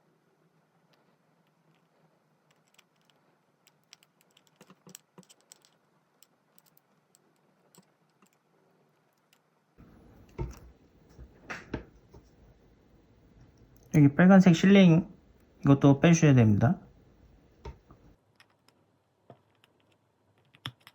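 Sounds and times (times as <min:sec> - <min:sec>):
small tools tapping phone parts: 0:02.5 - 0:08.4, 0:17.6 - 0:20.9.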